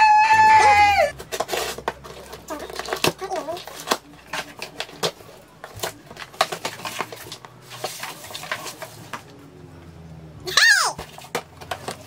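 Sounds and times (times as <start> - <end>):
item and box being handled: 1.1 - 9.3.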